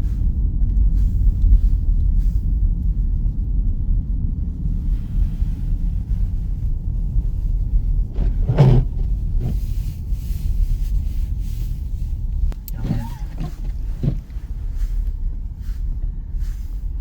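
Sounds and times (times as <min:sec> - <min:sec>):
car road rumble inside cabin: 0:00.0 - 0:17.0.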